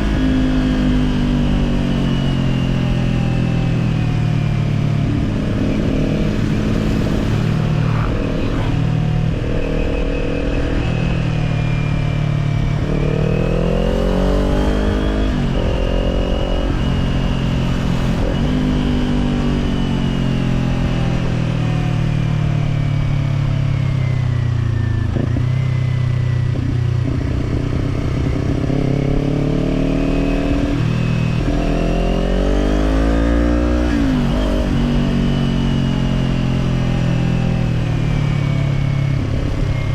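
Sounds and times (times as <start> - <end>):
motorcycle engine revving: 0.0 - 39.9
wind rush: 4.6 - 21.3.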